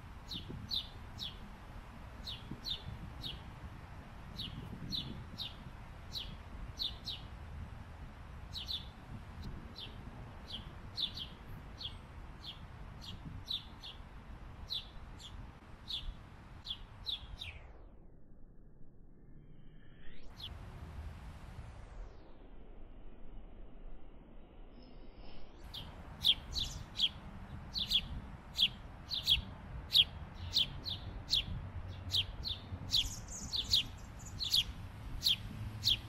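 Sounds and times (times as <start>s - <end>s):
steady low rumble: 0.0s - 36.0s
bird chip calls: 25.7s - 36.0s.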